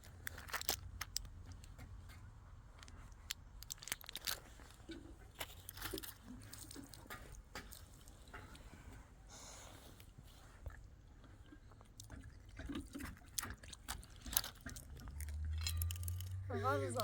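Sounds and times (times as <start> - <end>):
light crunching: 0.0 - 17.0
low steady hum: 0.0 - 17.0
small clicks: 13.4 - 16.4.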